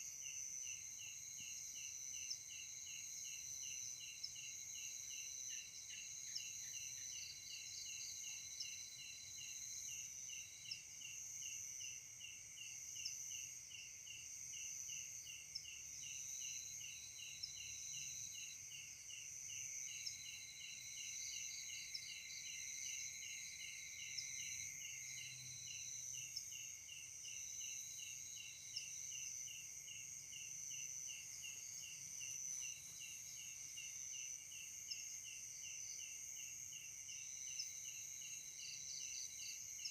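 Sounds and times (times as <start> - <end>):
regular cricket chirp: 0.0 - 39.9.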